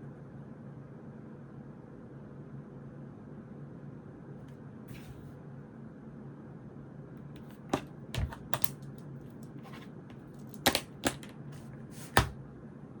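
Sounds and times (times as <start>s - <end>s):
stationery clicking on a desk: 7.4s - 12.4s.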